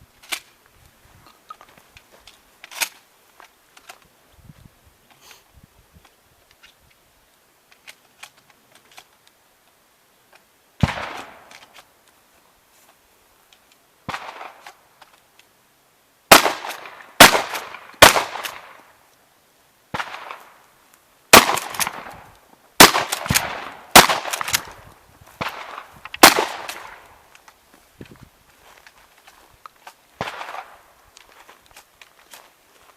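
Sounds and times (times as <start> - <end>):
shotgun shots echoing: 10.8 - 11.5, 16.3 - 18.8, 21.3 - 22.2, 22.8 - 24.7, 25.4 - 27.0, 30.2 - 30.8.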